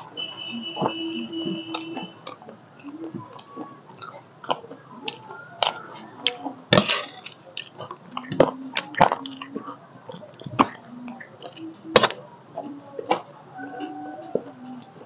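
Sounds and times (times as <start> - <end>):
low hums: 0.0 - 15.0
person chewing and smacking: 0.6 - 12.2
sharp mouth clicks: 0.8 - 12.2.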